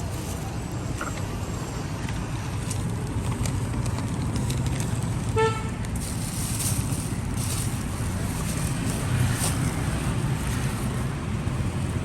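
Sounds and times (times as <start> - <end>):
street traffic rumble: 0.0 - 12.0
vehicle horn beep: 5.4 - 5.7.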